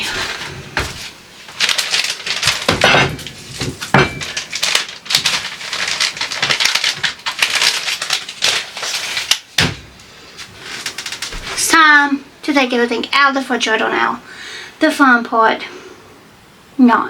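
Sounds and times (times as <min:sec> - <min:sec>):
packaging rustling and crinkling: 0:00.0 - 0:11.7
kitchen items clattering: 0:00.0 - 0:11.8.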